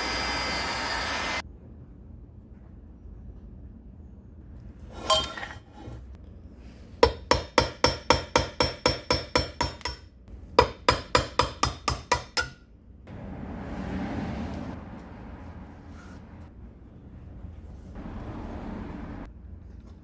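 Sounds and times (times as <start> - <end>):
hammer striking metal: 7.0 - 12.6.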